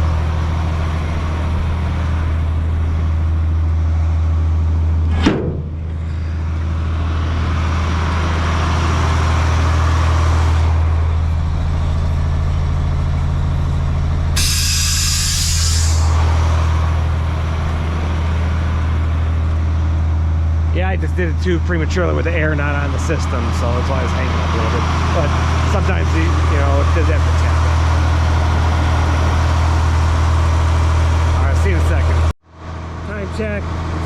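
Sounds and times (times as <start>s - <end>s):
diesel truck engine running: 0.0s - 34.0s
compressed air hissing: 14.4s - 17.8s.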